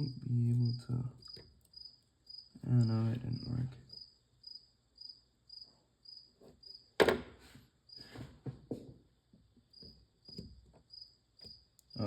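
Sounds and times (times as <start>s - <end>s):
cricket chirping: 0.0s - 7.0s, 9.7s - 12.0s.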